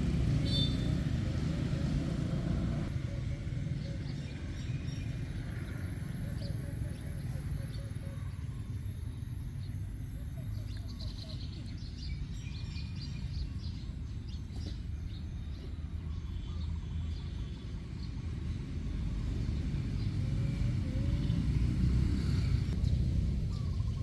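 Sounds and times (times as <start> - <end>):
low steady rumble: 0.0 - 24.0
faint bird chirps: 0.4 - 1.0.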